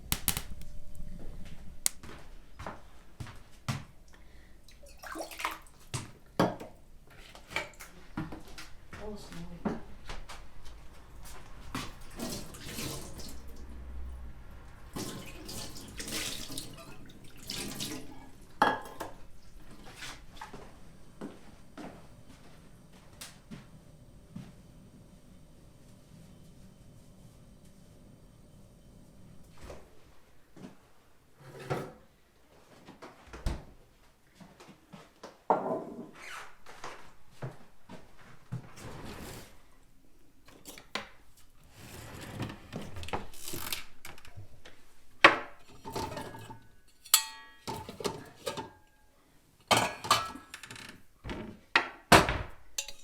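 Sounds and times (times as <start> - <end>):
water pouring and splashing: 4.7 - 6.1, 12.0 - 13.7, 14.9 - 18.4
rustling scrape: 38.7 - 39.7
objects knocking and scraping: 45.2 - 48.8.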